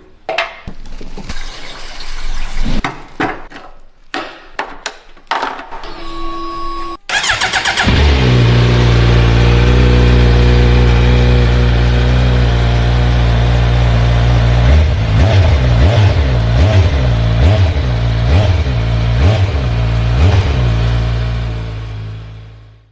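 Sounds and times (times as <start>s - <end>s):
short beep: 5.9s - 7.1s
engine revving: 7.1s - 22.6s
motorcycle engine starting and idling: 7.1s - 22.8s.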